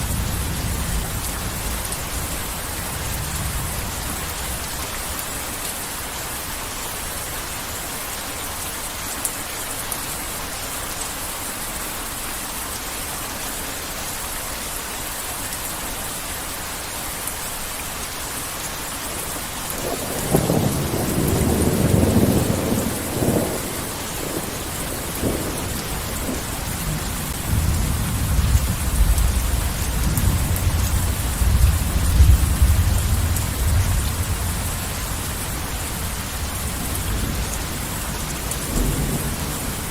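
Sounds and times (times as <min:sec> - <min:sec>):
heavy rain falling: 0:00.0 - 0:39.9
thunder rumbling: 0:19.8 - 0:39.9.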